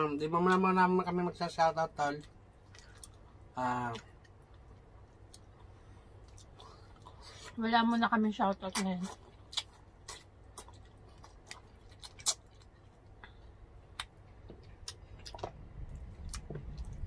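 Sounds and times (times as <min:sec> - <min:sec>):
wet chewing clicks and smacks: 0:02.0 - 0:07.2, 0:08.6 - 0:17.0.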